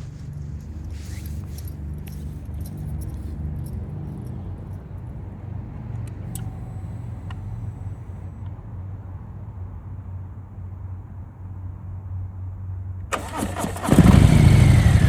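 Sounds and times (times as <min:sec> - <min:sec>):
motorcycle engine idling: 0:13.2 - 0:15.0.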